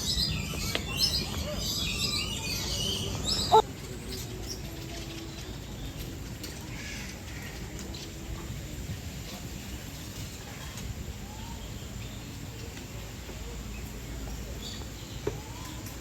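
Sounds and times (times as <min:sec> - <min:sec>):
small birds chirping: 0:00.0 - 0:16.0
loud squawk: 0:03.3 - 0:03.6.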